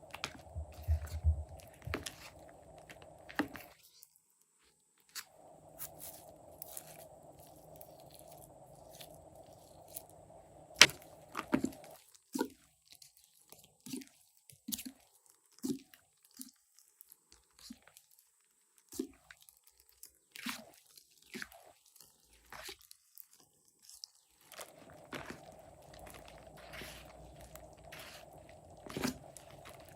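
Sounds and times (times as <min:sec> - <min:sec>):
steady background hum: 0:00.0 - 0:03.8, 0:05.2 - 0:12.0, 0:24.5 - 0:29.9.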